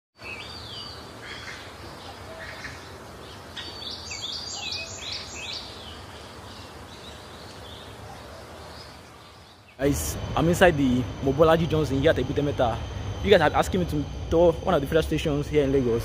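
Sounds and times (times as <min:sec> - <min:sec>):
small birds chirping: 0:00.2 - 0:15.8
low outdoor rumble: 0:09.8 - 0:16.0.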